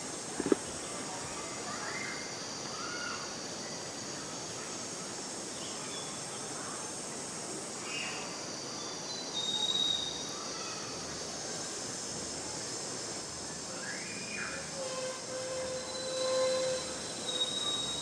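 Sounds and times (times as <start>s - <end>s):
high-pitched insect drone: 6.6s - 18.0s
thin high whistled note: 13.9s - 18.0s.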